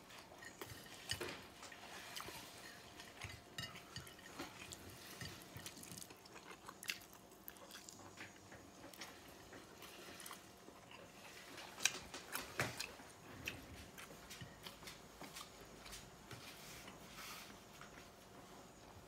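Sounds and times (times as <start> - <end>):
chewing and mouth smacking: 0.3 - 15.5.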